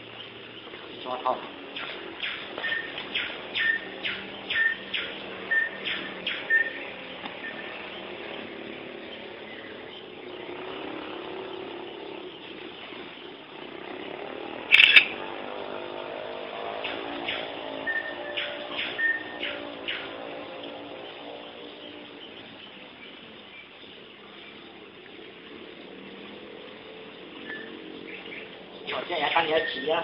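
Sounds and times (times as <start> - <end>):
bird chirping: 0.0 - 30.0.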